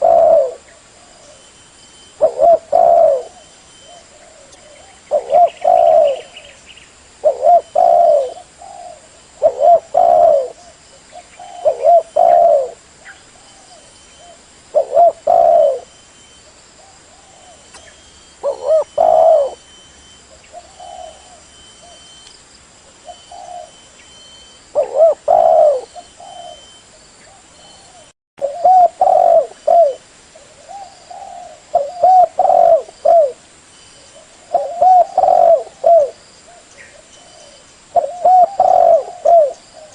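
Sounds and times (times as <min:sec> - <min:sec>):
dove cooing: 0:00.0 - 0:01.5, 0:02.1 - 0:06.6, 0:07.2 - 0:22.2, 0:22.9 - 0:33.4, 0:34.0 - 0:39.9.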